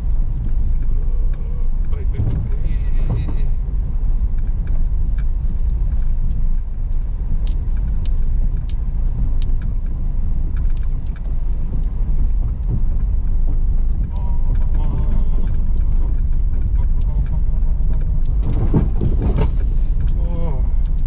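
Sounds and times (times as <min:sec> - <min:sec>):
clicks and knocks from road: 0:00.0 - 0:21.0
tyres and engine rumbling: 0:00.0 - 0:21.0
rattles: 0:09.6 - 0:21.0.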